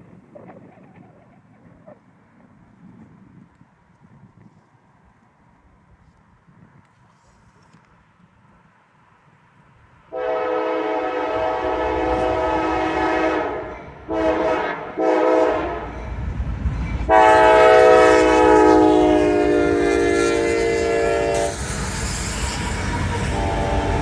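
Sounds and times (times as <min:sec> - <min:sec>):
train rumble: 0:07.0 - 0:24.0
locomotive air horn blasts: 0:10.1 - 0:16.0, 0:17.1 - 0:24.0.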